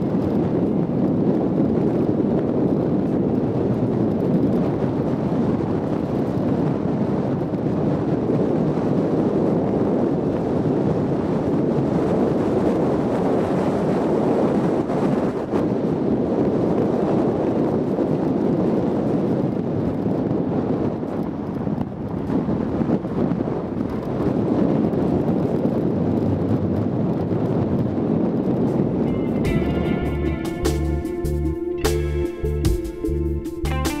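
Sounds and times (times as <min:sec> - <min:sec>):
low rushing rumble: 0:21.9 - 0:34.0.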